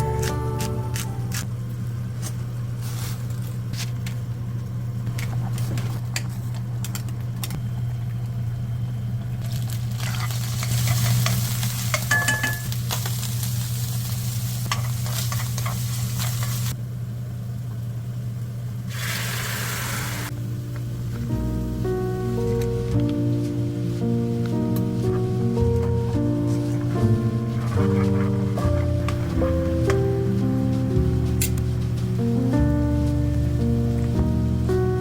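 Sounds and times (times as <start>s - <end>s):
steady low hum: 0.0s - 11.9s, 20.3s - 35.0s
food sizzling in a pan: 9.6s - 16.7s, 18.9s - 20.3s.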